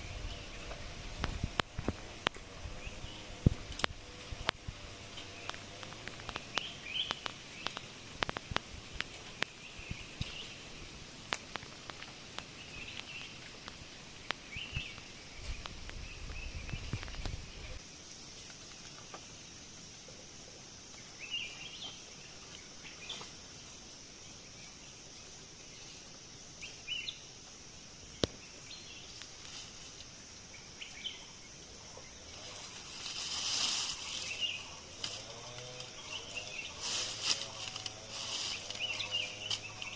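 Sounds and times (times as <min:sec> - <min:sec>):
sharp clicks and rustles: 0:03.3 - 0:17.8, 0:32.3 - 0:39.9
bird chirps: 0:05.1 - 0:10.9, 0:33.7 - 0:39.9.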